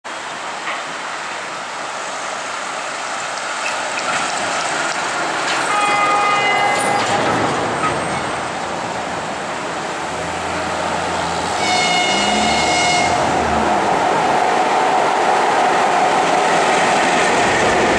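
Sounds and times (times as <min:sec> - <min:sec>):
train rolling past: 0:00.2 - 0:17.9
locomotive horn blasts: 0:05.7 - 0:07.4, 0:11.4 - 0:13.6.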